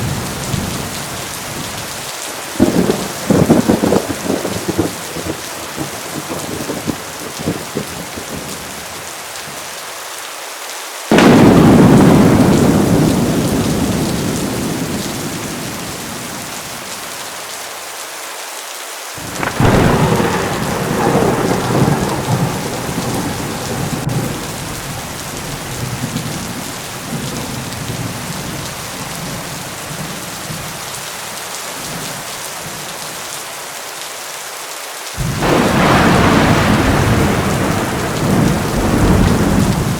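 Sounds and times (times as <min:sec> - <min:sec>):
heavy rain falling: 0:00.0 - 0:39.9
thunder rumbling: 0:02.5 - 0:08.7, 0:11.1 - 0:17.1, 0:19.2 - 0:30.7, 0:35.2 - 0:39.9
loud thunderclap: 0:02.6 - 0:08.6, 0:11.1 - 0:16.6, 0:19.2 - 0:28.3, 0:35.2 - 0:39.9.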